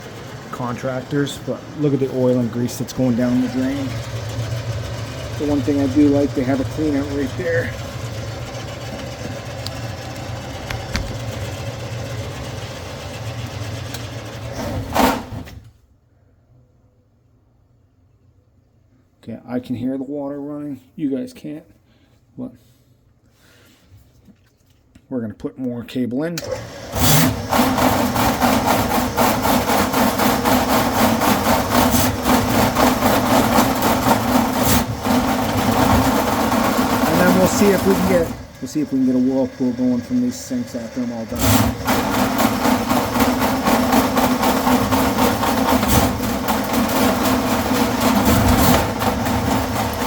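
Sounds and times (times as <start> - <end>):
drain-cleaning machine motor hum: 0.0 - 15.5, 26.4 - 50.0
turning cable clattering: 0.0 - 15.6, 26.4 - 50.0
loud short clatter: 14.0 - 15.7, 41.4 - 50.0.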